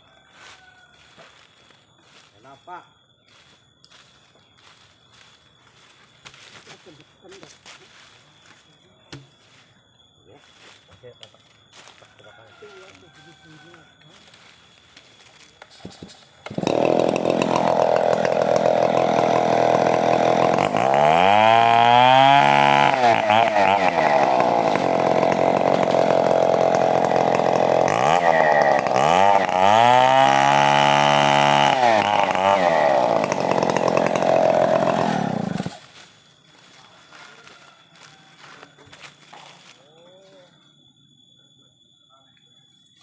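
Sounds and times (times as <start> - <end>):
chainsaw cutting wood: 15.5 - 36.7.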